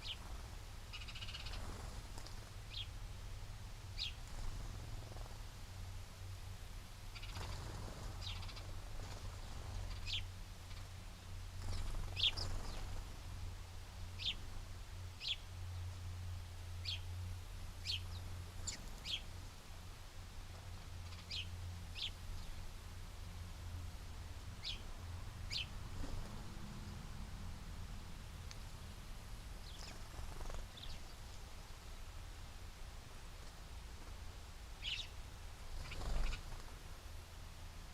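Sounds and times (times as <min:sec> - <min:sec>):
small birds chirping: 0:00.0 - 0:03.0, 0:03.9 - 0:05.6, 0:07.0 - 0:16.0, 0:16.8 - 0:19.6, 0:20.6 - 0:22.8, 0:24.6 - 0:27.1, 0:28.4 - 0:32.0, 0:33.3 - 0:37.1.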